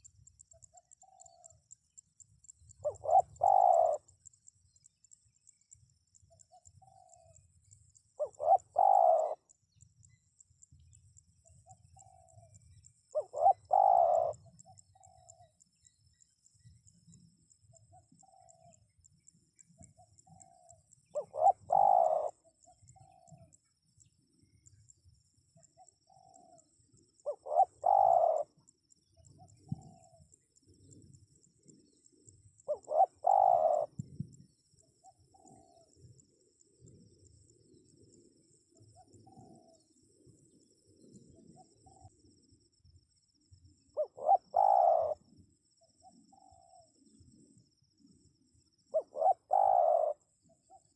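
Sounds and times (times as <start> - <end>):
dove cooing: 0.0 - 1.6, 2.7 - 4.2, 6.5 - 7.5, 8.2 - 9.5, 11.7 - 15.5, 20.1 - 23.6, 26.1 - 28.6, 32.7 - 34.0, 39.0 - 39.9, 44.0 - 45.3, 46.0 - 47.1, 48.9 - 50.9.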